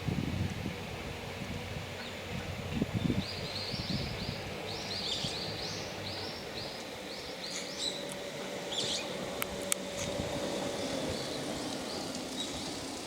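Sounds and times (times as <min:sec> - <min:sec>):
outdoor background: 0:00.0 - 0:13.0
bird chirping: 0:03.0 - 0:08.1, 0:08.7 - 0:09.2.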